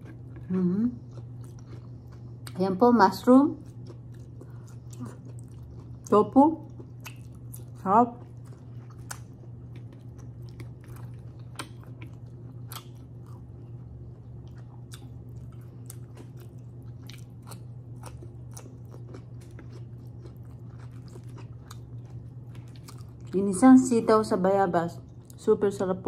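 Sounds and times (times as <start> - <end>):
chewing and biting food: 0.0 - 2.6, 3.5 - 23.4.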